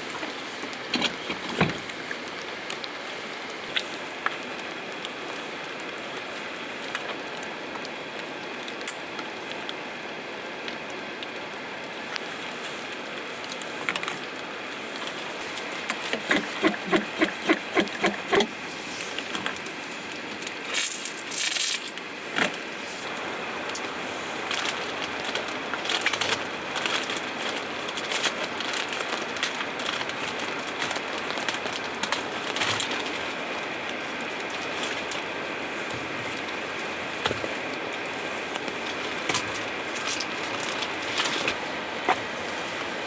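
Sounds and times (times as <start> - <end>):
steady rain: 0.0 - 43.0
quick rhythmic strokes: 16.2 - 18.5.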